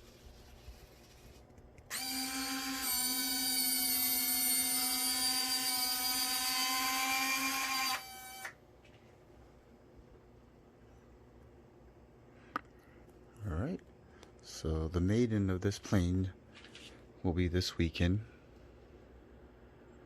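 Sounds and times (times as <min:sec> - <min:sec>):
small motor whine: 0:01.9 - 0:08.6.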